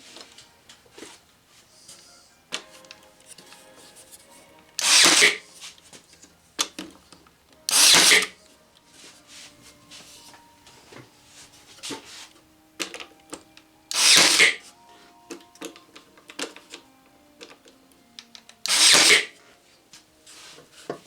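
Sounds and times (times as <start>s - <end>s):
nail gun firing: 4.8s - 5.4s, 7.7s - 8.3s, 13.9s - 14.6s, 18.7s - 19.3s.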